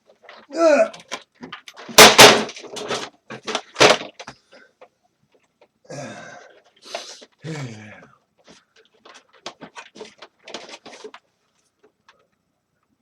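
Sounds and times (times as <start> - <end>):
knocks and scraping clatter of parts: 0.0 - 5.8, 8.4 - 12.3.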